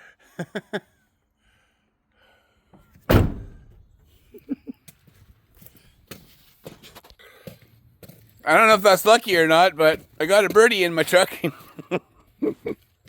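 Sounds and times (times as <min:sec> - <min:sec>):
truck door slamming: 0:02.8 - 0:04.0.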